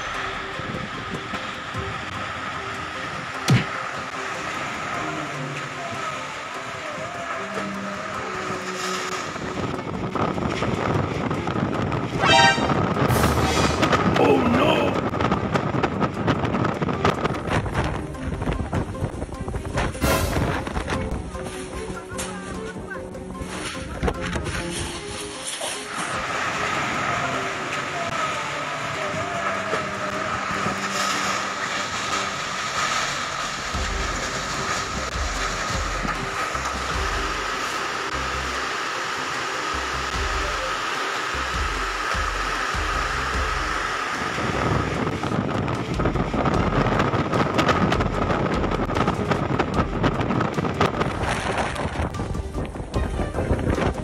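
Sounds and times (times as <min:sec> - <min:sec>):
tornado winds howling: 0:00.0 - 0:54.0
gusts buffeting microphone: 0:08.0 - 0:25.4, 0:26.1 - 0:38.4, 0:41.3 - 0:54.0
debris crackles and knocks: 0:29.6 - 0:37.6.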